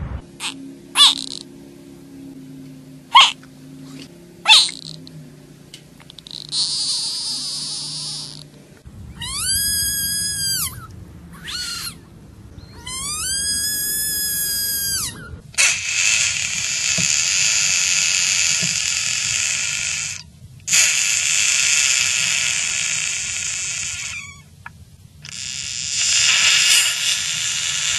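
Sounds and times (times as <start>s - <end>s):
frog screaming: 0.4s - 1.5s, 3.1s - 3.4s, 4.4s - 5.1s, 6.1s - 8.5s, 9.1s - 12.0s, 12.7s - 24.5s, 25.3s - 27.9s.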